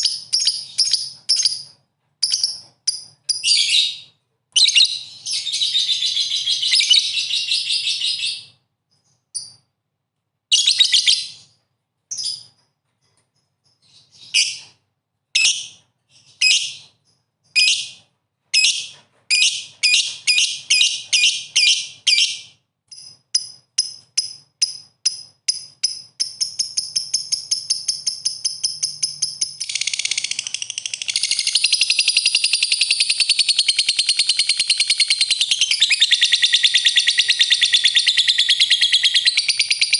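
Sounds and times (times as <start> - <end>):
lovebird chattering chirps: 0.0 - 4.0, 18.6 - 39.9.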